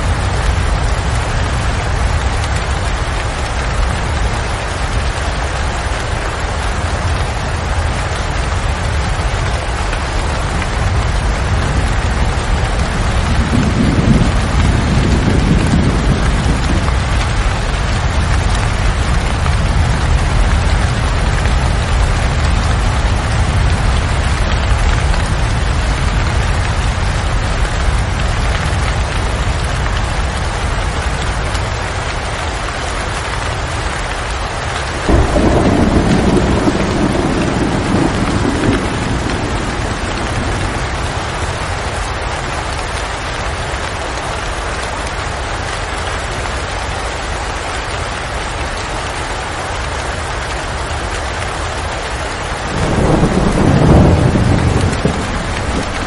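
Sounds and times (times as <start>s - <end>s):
thunder rumbling: 0.0s - 31.4s, 34.8s - 43.5s, 52.6s - 56.0s
steady rain falling: 0.0s - 56.0s.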